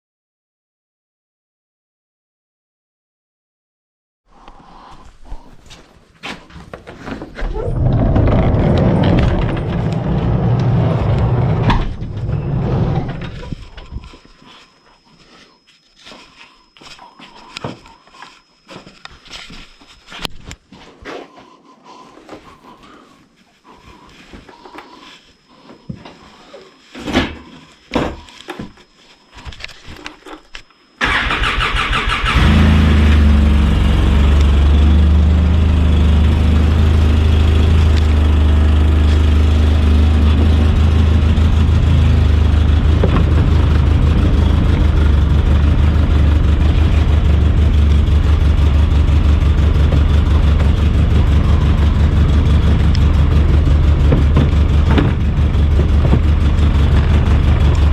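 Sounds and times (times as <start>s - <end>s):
electric starter cranking: 31.0s - 34.7s
atv engine idling: 33.0s - 57.9s
knocks and clicks: 52.7s - 57.9s.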